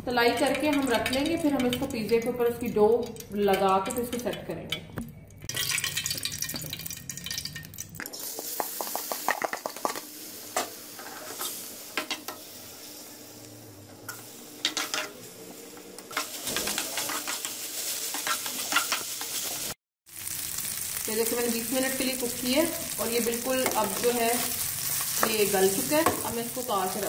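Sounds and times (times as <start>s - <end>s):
chicken sizzling in frying pan: 5.6s - 27.0s
spatula scraping a pan: 16.1s - 19.5s.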